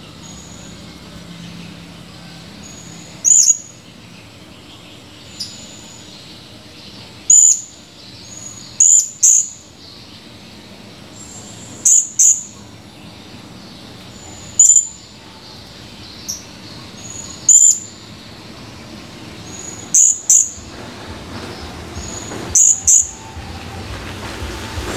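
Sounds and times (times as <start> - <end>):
parrot high-pitched chirps: 7.3 - 7.8, 8.5 - 9.6, 11.8 - 12.6, 14.4 - 15.0, 17.0 - 18.0, 19.6 - 20.6, 22.5 - 23.2.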